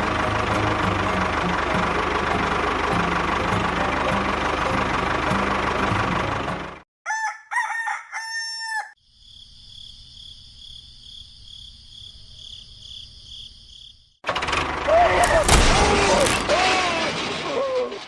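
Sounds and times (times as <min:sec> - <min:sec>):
motor running: 0:00.0 - 0:06.8, 0:14.3 - 0:16.8
rooster crowing: 0:07.0 - 0:09.0.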